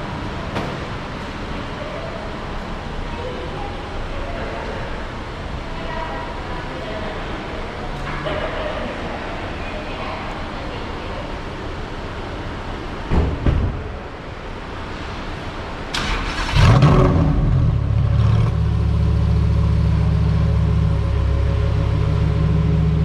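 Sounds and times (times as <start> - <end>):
car engine starting and idling: 15.3 - 23.0.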